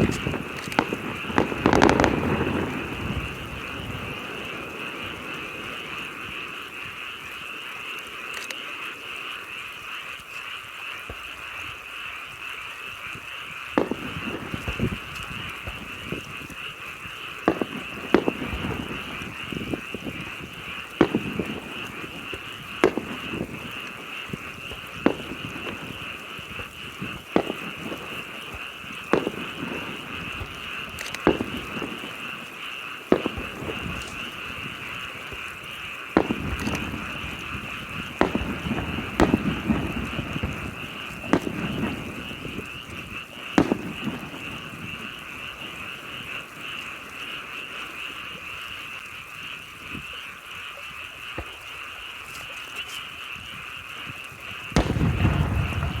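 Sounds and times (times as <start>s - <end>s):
firework shells bursting: 0.0s - 9.0s, 13.1s - 48.8s, 54.6s - 56.0s
frogs croaking chorus: 0.0s - 56.0s.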